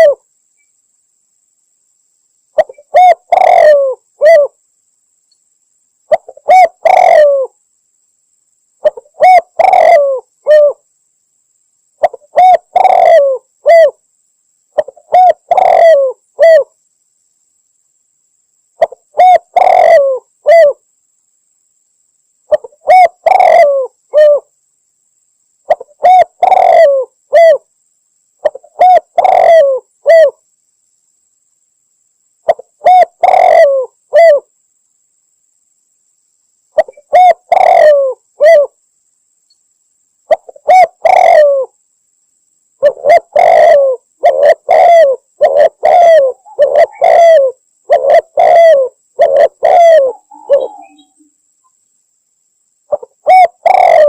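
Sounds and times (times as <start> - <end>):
dove cooing: 0.0 - 0.2, 2.6 - 4.6, 6.1 - 7.6, 8.8 - 10.8, 12.0 - 14.0, 14.8 - 16.7, 18.8 - 20.8, 22.5 - 24.5, 25.7 - 27.7, 28.4 - 30.4, 32.5 - 34.5, 36.8 - 38.8, 40.3 - 41.8, 42.8 - 51.3, 52.9 - 54.0.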